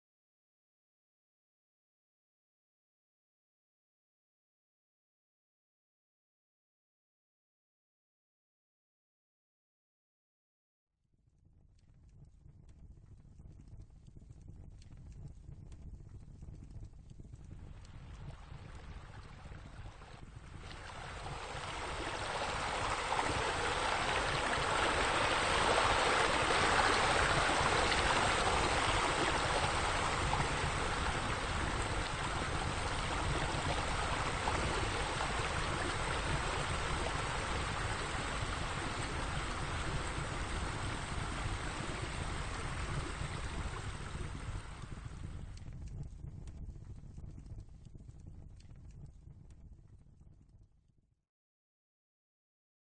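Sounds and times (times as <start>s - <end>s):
water feature splashing: 18.2s - 44.9s.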